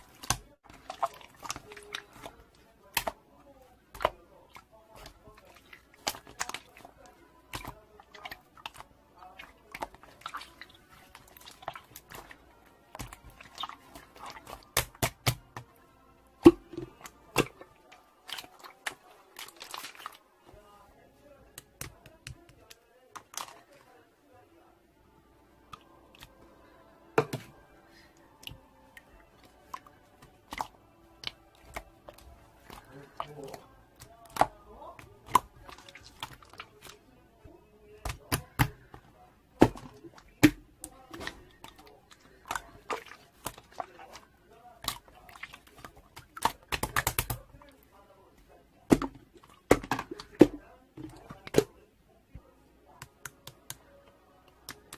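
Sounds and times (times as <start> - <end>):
slime squishing with sticky pops: 9.7 - 15.6, 44.8 - 47.6
slime popping and crackling: 46.2 - 47.4.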